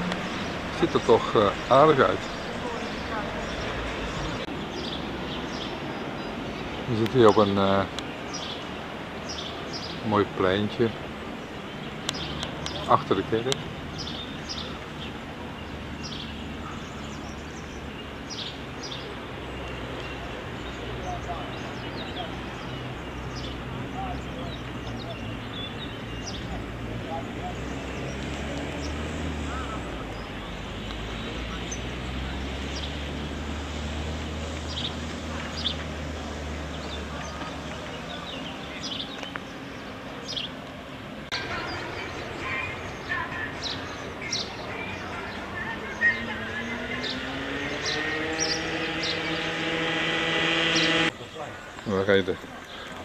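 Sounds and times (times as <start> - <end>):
birds chirping: 0.0 - 53.0
outdoor background noise: 0.0 - 53.0.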